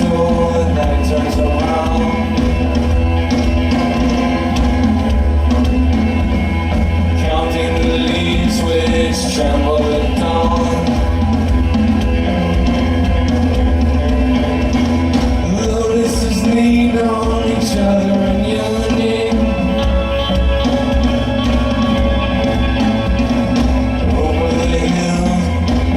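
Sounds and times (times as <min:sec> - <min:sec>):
person singing: 0:00.0 - 0:02.8, 0:07.0 - 0:11.5, 0:15.4 - 0:21.0, 0:23.9 - 0:25.9
rock band playing live: 0:00.0 - 0:25.9.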